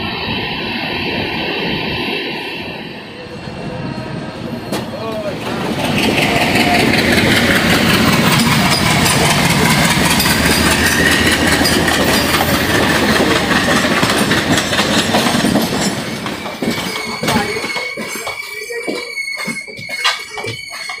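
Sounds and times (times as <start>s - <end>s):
train wheels rushing on rails: 0.0s - 21.0s
wheels clacking over rail joints: 4.7s - 21.0s.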